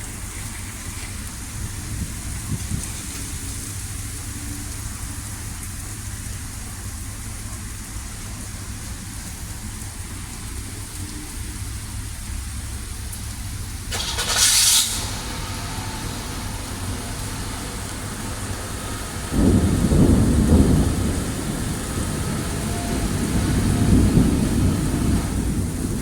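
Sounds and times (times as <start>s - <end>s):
heavy rain falling: 0.0s - 26.0s
deep rumble of thunder: 1.4s - 26.0s
short loud burst: 13.9s - 15.8s.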